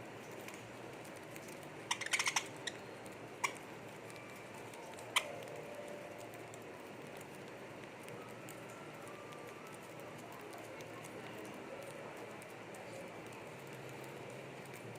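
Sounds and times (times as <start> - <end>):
bird beak pecking clicks: 1.9 - 2.8, 3.4 - 3.6.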